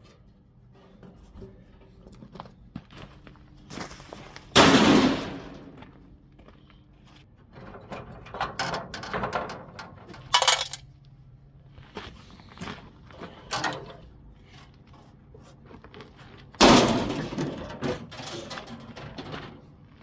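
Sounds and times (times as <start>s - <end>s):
metal parts clanking and knocking: 4.6s - 5.8s, 7.5s - 10.8s, 13.2s - 14.1s, 16.6s - 19.9s.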